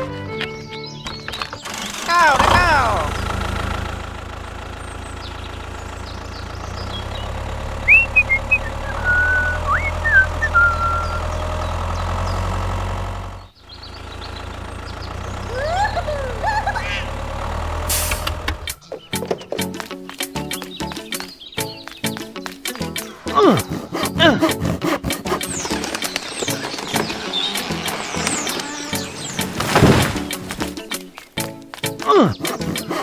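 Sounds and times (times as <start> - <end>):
small engine droning: 0.0 - 19.7, 21.6 - 33.0
high gliding chirps: 7.8 - 11.4.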